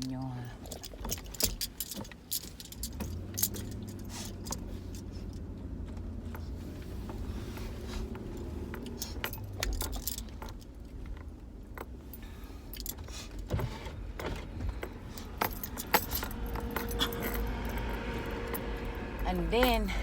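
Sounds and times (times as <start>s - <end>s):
keys jangling: 0.6s - 5.5s, 8.7s - 10.8s, 14.7s - 19.0s.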